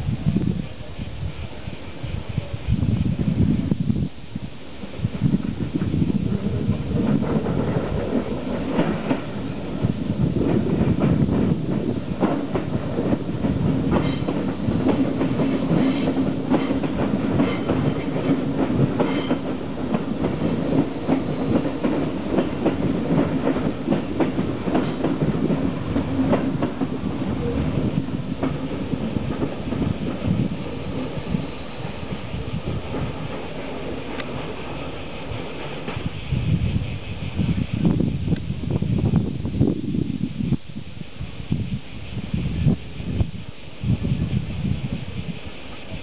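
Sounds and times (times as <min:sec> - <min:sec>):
train wheels clicking over rail joints: 0:05.7 - 0:36.8.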